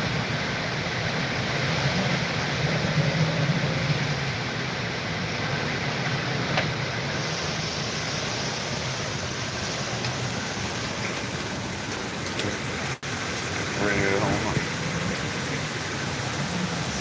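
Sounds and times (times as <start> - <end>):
hurricane wind rushing: 0.0 - 17.0.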